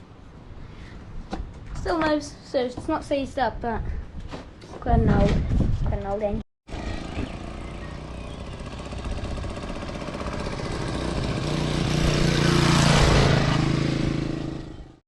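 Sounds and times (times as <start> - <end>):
motorbike engine running: 6.7 - 15.0.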